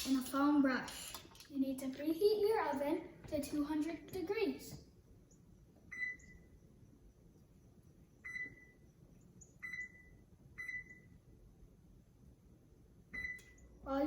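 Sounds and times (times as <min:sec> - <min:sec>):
oven keypad beeps: 0:05.9 - 0:06.5, 0:08.2 - 0:08.8, 0:09.6 - 0:11.1, 0:13.1 - 0:13.6.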